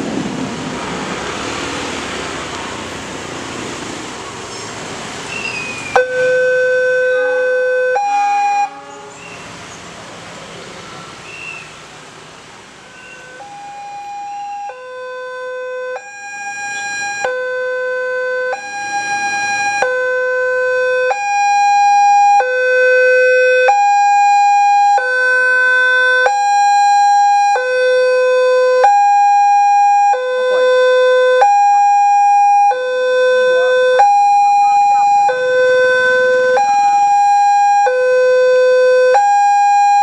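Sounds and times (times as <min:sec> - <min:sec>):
wash of noise: 0:00.0 - 0:06.0
level crossing two-tone alarm: 0:05.9 - 0:09.0, 0:12.9 - 0:25.4, 0:26.2 - 0:40.0.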